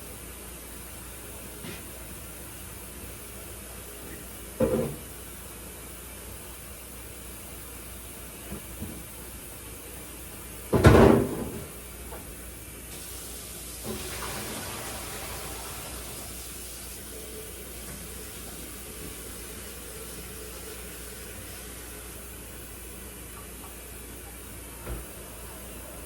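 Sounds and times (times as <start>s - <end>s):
water running from tap: 12.9s - 22.6s.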